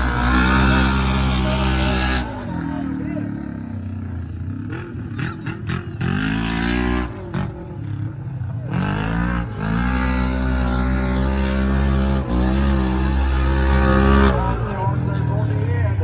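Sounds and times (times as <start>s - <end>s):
truck engines revving: 0.0s - 16.0s.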